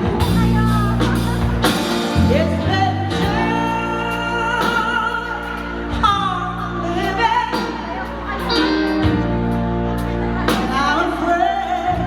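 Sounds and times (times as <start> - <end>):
woman singing: 0.0 - 9.2, 10.4 - 12.0
steady bass line: 0.0 - 12.0.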